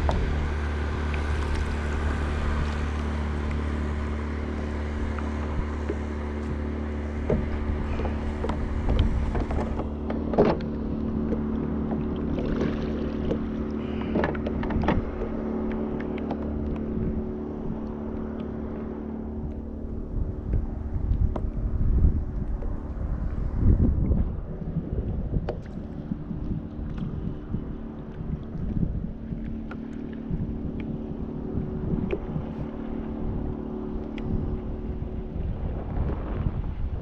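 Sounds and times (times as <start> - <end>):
water slapping against kayak hull: 0.0 - 24.5, 25.2 - 36.1
motorboat engine drone: 0.0 - 37.0.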